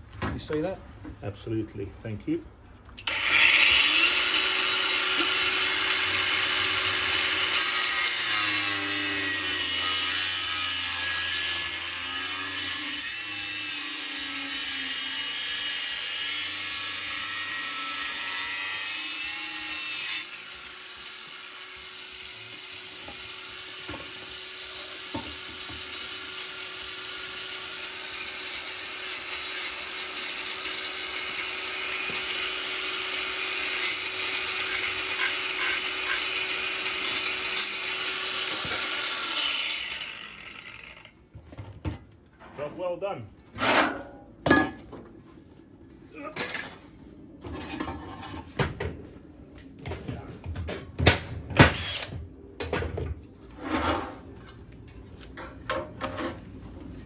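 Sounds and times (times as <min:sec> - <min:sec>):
angle grinder cutting metal: 0:03.0 - 0:41.2, 0:51.6 - 0:52.2.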